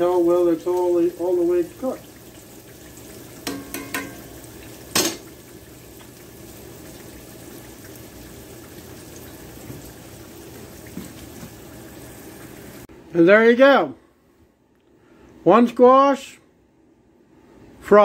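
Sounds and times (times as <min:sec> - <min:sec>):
squash sizzling in oil: 0:00.0 - 0:12.9.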